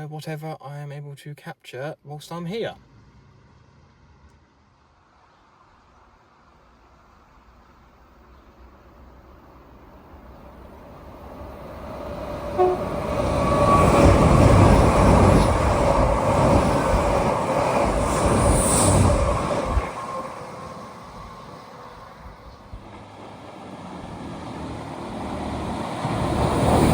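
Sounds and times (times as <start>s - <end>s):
train passing: 2.6s - 26.9s
train horn toot: 12.5s - 14.9s.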